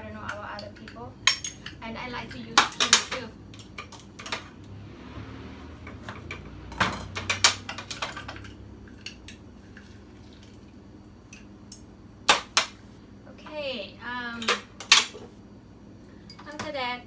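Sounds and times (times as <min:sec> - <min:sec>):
utensils clinking against dishes: 0:00.0 - 0:04.6, 0:05.8 - 0:09.4, 0:16.2 - 0:16.8.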